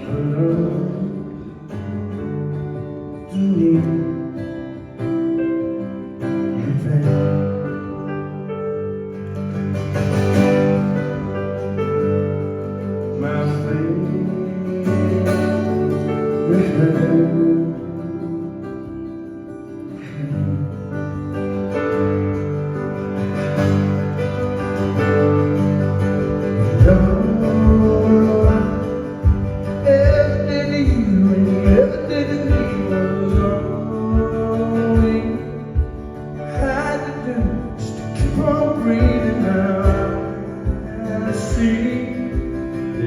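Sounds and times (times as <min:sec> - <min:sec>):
guitars holding sustained chords: 0:00.0 - 0:43.0
steady drum beat: 0:26.2 - 0:42.9.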